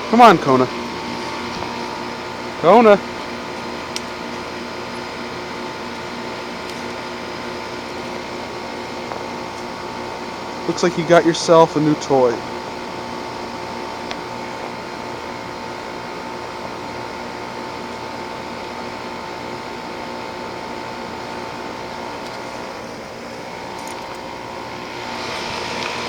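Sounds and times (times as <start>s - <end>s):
steady high tone: 0.0s - 3.0s
heat pump humming: 0.0s - 26.0s.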